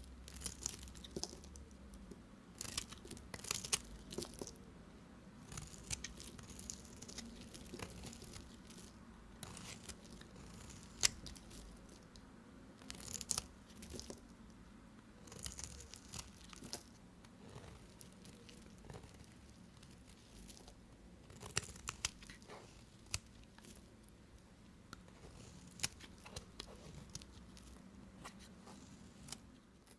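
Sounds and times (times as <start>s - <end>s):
knife cutting soap: 5.4s - 8.8s, 9.4s - 11.8s.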